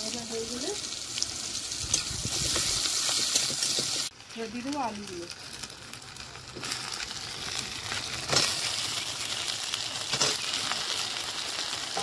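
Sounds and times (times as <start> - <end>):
potatoes sizzling in oil: 0.0 - 12.0.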